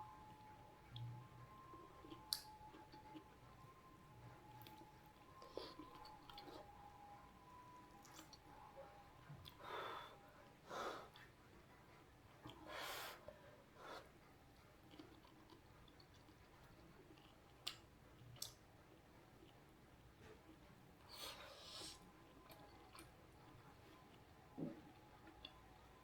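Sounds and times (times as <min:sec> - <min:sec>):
soft breaths: 0:09.5 - 0:14.6, 0:21.0 - 0:22.2.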